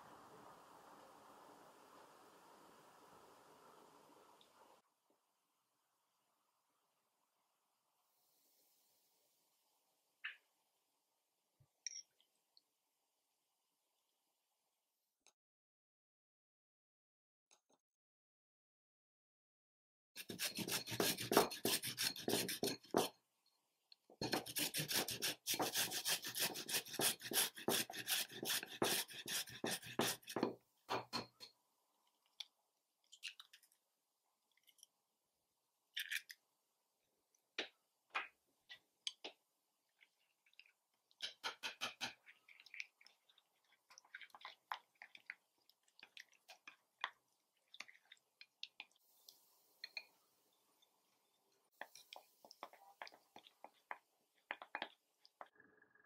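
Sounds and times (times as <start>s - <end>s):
chopsticks mixing in ceramic bowl: 20.2s - 23.1s, 40.0s - 49.0s
potato being grated: 20.2s - 23.1s, 24.2s - 30.5s.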